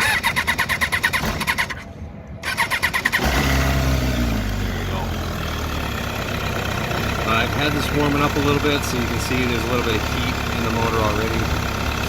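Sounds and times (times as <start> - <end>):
motorcycle engine idling: 4.4 - 12.0.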